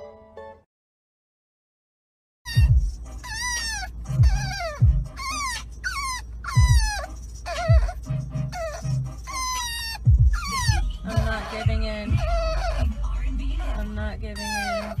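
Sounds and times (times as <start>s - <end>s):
dog whining: 2.5s - 15.0s
low thumps: 4.1s - 5.2s, 10.0s - 13.0s.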